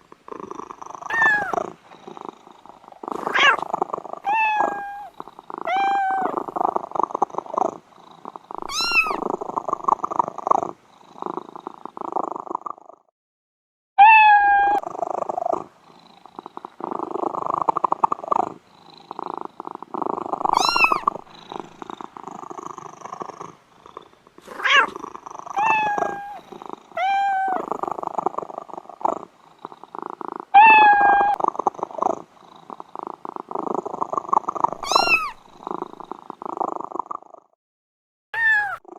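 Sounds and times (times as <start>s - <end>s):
cats purring: 0.0s - 13.1s, 14.8s - 37.6s
cat meowing: 1.1s - 1.6s, 3.3s - 3.6s, 4.2s - 6.4s, 8.6s - 9.2s, 14.0s - 14.8s, 20.5s - 21.2s, 24.6s - 24.9s, 25.6s - 26.4s, 27.0s - 27.6s, 30.5s - 31.4s, 34.8s - 35.4s, 38.4s - 38.9s.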